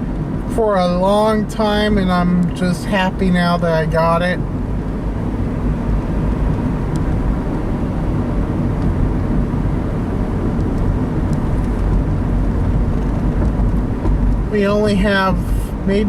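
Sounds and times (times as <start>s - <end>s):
car engine drone: 0.0s - 16.0s.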